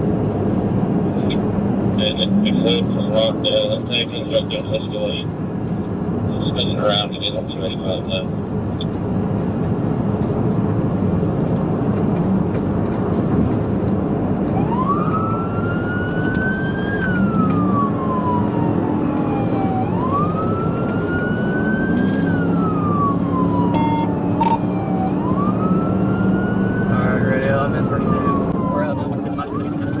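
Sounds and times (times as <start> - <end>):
car engine and road noise: 0.0 - 30.0
police siren wailing: 1.2 - 5.4, 14.4 - 30.0.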